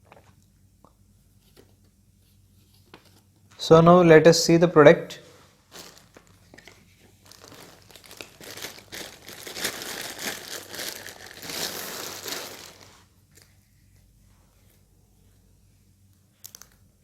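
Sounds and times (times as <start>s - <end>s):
packaging crinkling and rustling: 5.6s - 13.6s.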